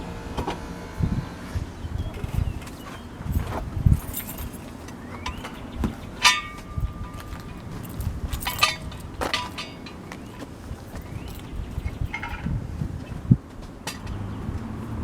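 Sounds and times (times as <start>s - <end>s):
metal clinking: 3.3s - 10.4s.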